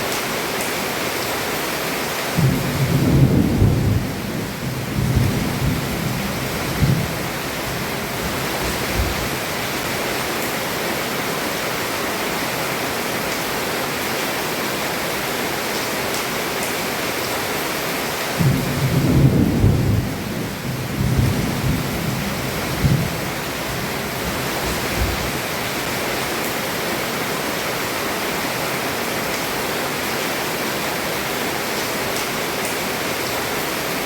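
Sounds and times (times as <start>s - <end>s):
heavy rain falling: 0.0s - 34.0s
rumble of thunder: 2.4s - 9.3s, 18.4s - 25.3s.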